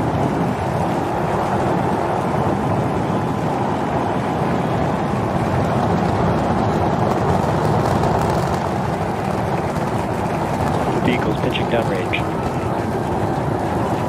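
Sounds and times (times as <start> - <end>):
rocket engines roaring: 0.0 - 14.0.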